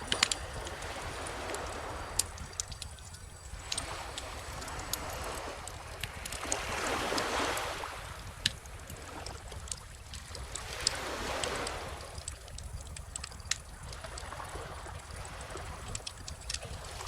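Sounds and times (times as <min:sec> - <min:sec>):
bonfire crackling: 0:00.0 - 0:17.0
ocean waves washing: 0:00.0 - 0:17.0.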